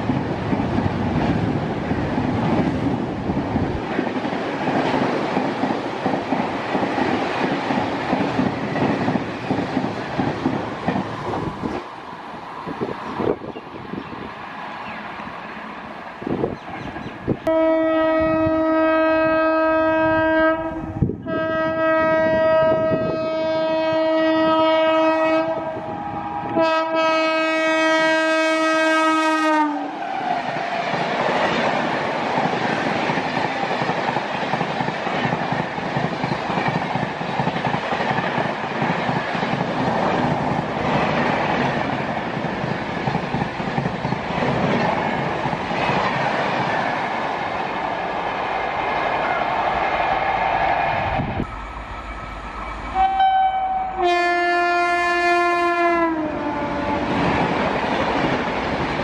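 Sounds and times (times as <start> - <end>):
train wheels clattering on rails: 0.0 - 11.9, 30.3 - 48.0
locomotive horn blasts: 17.4 - 29.9, 52.7 - 57.2.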